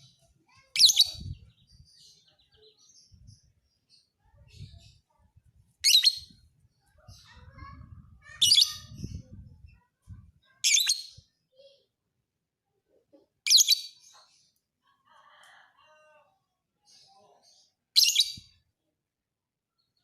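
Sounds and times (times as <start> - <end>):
soft bird chirps: 16.9 - 18.6.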